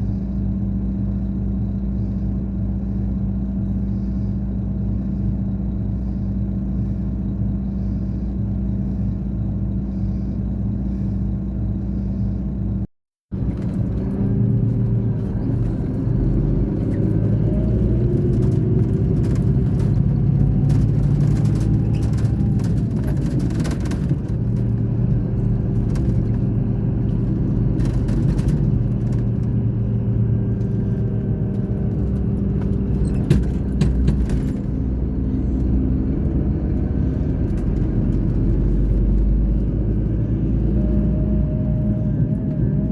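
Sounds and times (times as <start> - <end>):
diesel engine running: 0.0 - 42.9
clicks and rattles: 18.1 - 29.5.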